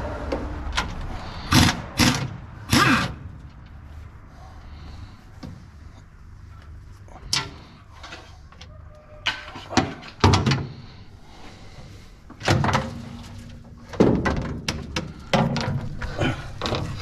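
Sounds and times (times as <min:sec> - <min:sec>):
metal panels clanking and banging: 0:09.2 - 0:10.9, 0:12.4 - 0:17.0.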